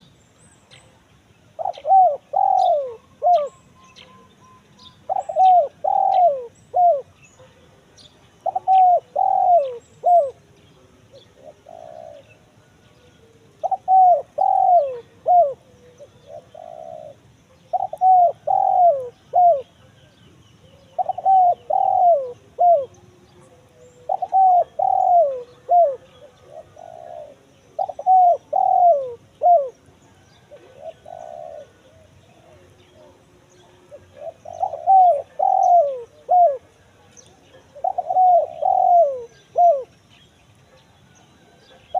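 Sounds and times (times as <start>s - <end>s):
dove cooing: 1.5s - 40.0s.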